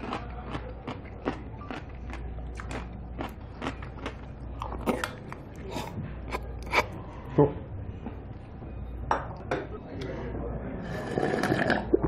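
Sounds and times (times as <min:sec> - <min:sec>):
person chewing food: 0:00.0 - 0:07.0.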